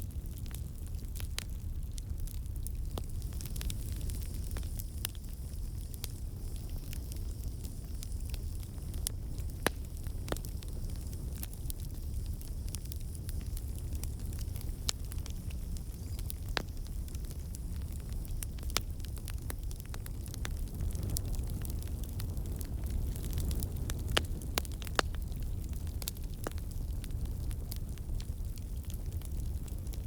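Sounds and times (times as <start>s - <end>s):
campfire flame rumble: 0.0s - 30.0s
wood crackling and popping: 0.0s - 30.0s.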